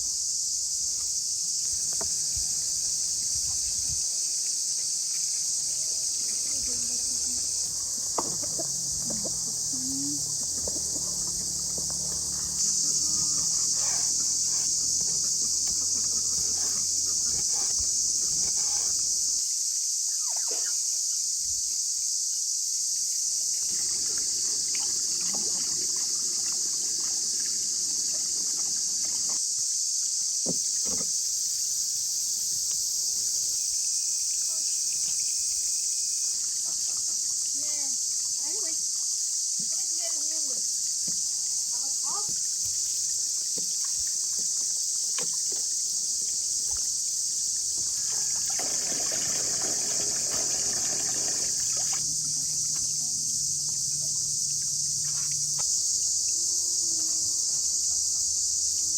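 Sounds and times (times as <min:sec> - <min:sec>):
insects chirring: 0:00.0 - 0:58.9
faint knocks and rustles: 0:30.4 - 0:31.2.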